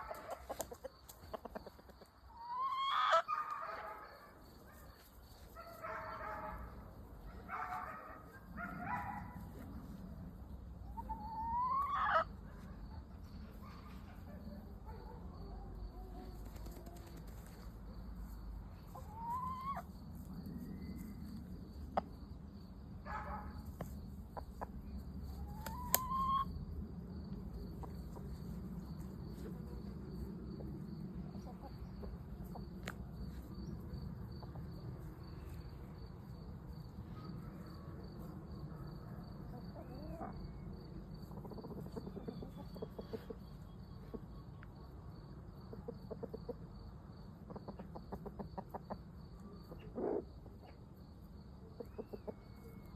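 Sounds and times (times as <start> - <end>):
chickens clucking: 0.0 - 3.3, 10.8 - 12.4, 18.8 - 20.0, 23.8 - 26.5, 27.5 - 33.0, 39.5 - 40.5, 41.2 - 44.5, 45.5 - 50.8, 51.6 - 52.9
crickets chirping: 0.0 - 52.9.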